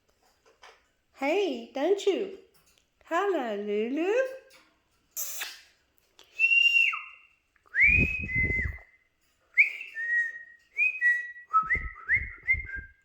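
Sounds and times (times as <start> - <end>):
whistled phrases: 6.3 - 9.0, 9.6 - 13.0.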